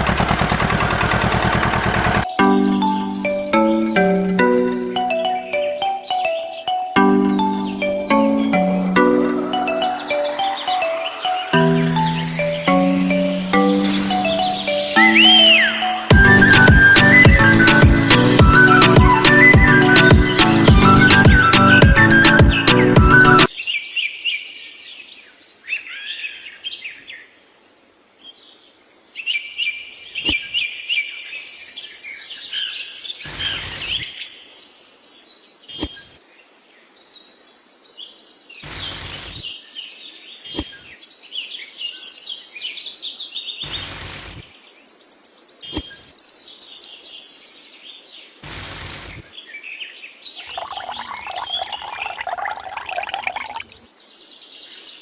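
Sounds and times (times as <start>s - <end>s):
loud burst of noise: 0.0s - 2.2s
small birds chirping: 28.5s - 36.1s.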